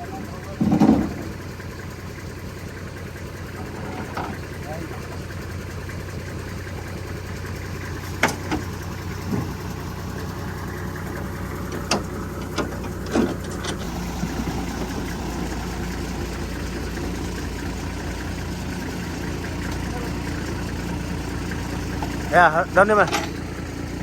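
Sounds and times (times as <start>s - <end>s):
vehicle engine running: 0.0s - 24.0s
sharp knocks and rattles: 0.5s - 1.6s, 7.9s - 10.4s, 11.0s - 22.3s, 22.9s - 23.6s.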